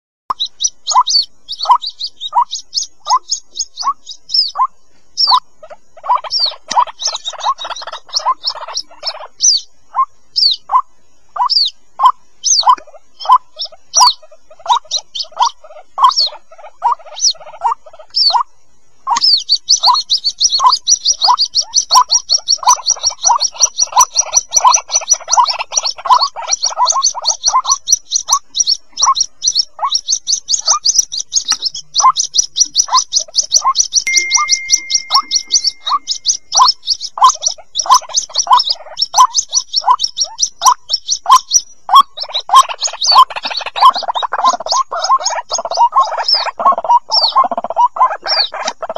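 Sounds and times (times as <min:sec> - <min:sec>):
chicks calling short notes: 0:00.3 - 0:48.9
high-pitched cheeps: 0:34.1 - 0:36.7.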